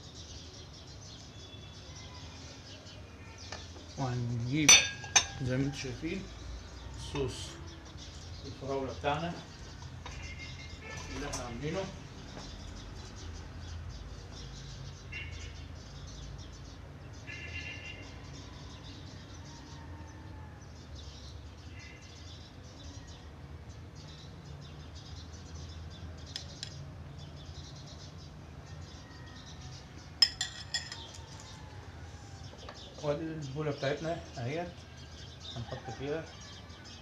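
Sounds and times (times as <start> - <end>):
dishes clinking: 4.6 - 5.4, 30.2 - 31.2.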